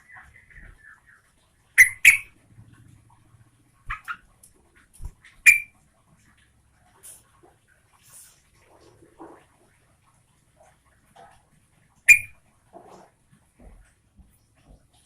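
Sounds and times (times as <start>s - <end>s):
bird chattering and calling: 0.0s - 2.4s, 3.9s - 4.3s, 5.4s - 5.7s, 12.1s - 12.4s.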